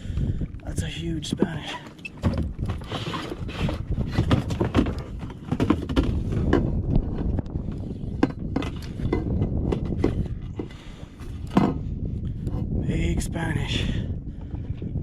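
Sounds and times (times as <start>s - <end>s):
wind rumble on microphone: 0.0s - 15.0s
knocks and clunks on plastic kayak: 1.2s - 12.8s.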